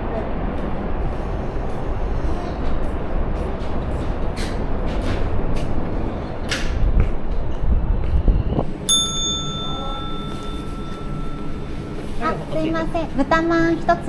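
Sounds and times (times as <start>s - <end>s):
low rumbling wind: 0.0s - 14.0s
bright bell ding: 8.9s - 12.4s.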